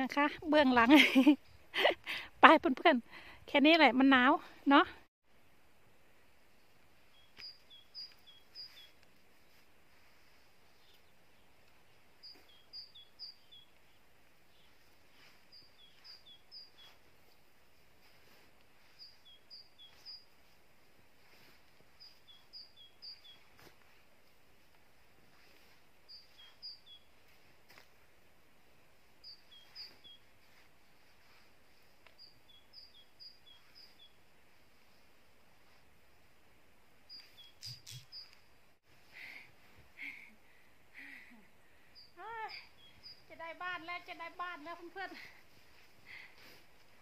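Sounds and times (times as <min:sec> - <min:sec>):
bird chirps: 0:07.1 - 0:09.0, 0:12.2 - 0:17.0, 0:18.8 - 0:20.4, 0:21.9 - 0:23.6, 0:26.1 - 0:27.2, 0:29.2 - 0:30.3, 0:32.1 - 0:34.2, 0:37.0 - 0:38.5, 0:41.9 - 0:44.2.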